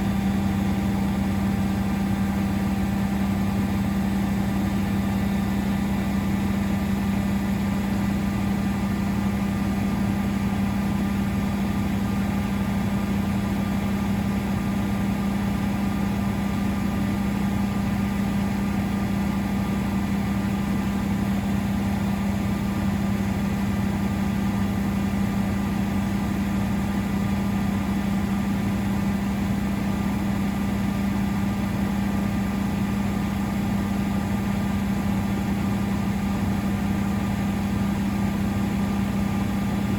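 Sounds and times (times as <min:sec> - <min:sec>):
washing machine humming: 0:00.0 - 0:39.9.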